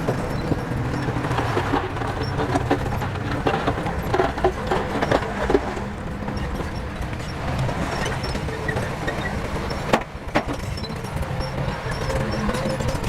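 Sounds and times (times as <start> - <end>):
irregular clattering and knocks: 0.0 - 7.6
diesel engine running steadily: 0.0 - 9.0.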